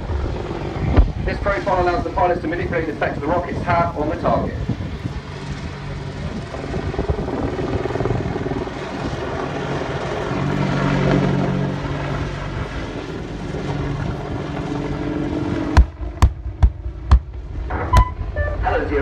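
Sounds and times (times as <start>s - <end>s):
helicopter rotor and engines: 0.0s - 19.0s
sharp bang: 15.8s - 18.8s.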